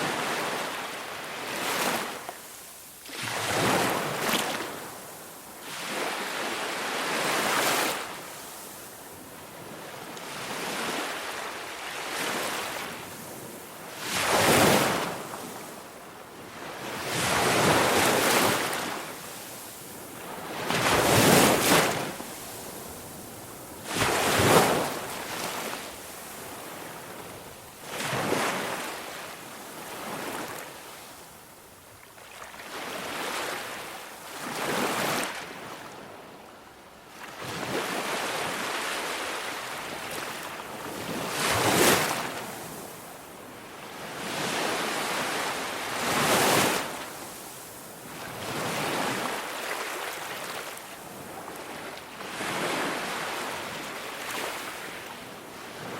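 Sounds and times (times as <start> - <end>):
waves washing in: 17.1 - 30.7, 37.6 - 43.1.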